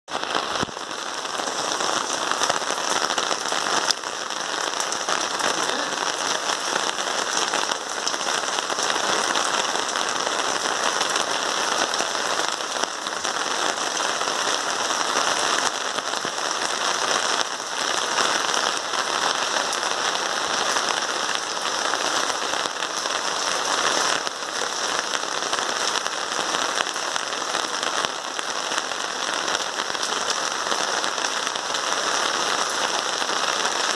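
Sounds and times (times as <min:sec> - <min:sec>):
heavy rain splashing on hard surfaces: 0:00.1 - 0:33.9.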